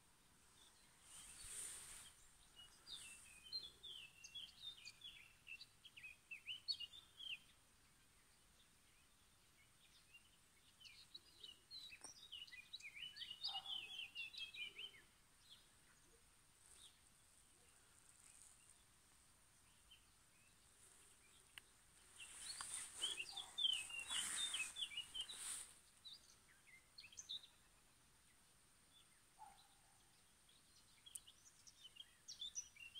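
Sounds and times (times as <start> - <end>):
songbird singing chirpy notes: 0.0 - 32.9.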